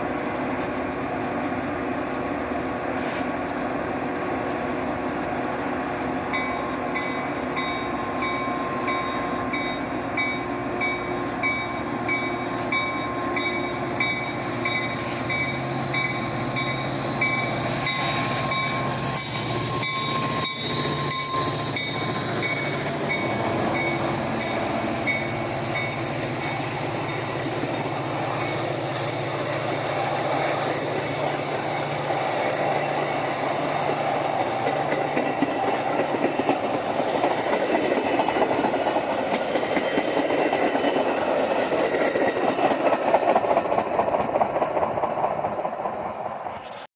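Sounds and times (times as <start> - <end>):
train rolling past: 0.0 - 46.9
ringing signal bell: 19.6 - 24.0.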